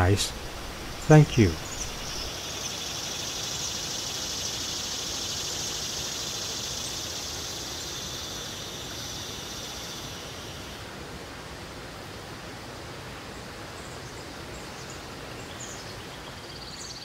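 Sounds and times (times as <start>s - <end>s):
high-pitched insect chorus: 0.0s - 10.9s
outdoor background hiss: 0.0s - 17.0s.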